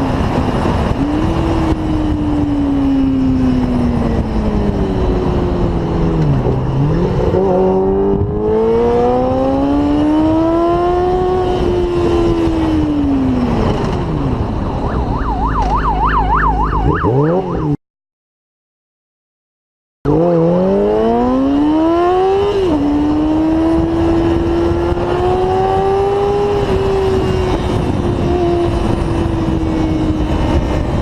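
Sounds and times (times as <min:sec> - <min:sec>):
motorcycle engine revving: 0:00.0 - 0:14.6, 0:15.2 - 0:17.8, 0:20.1 - 0:31.0
police siren yelping: 0:14.6 - 0:17.8.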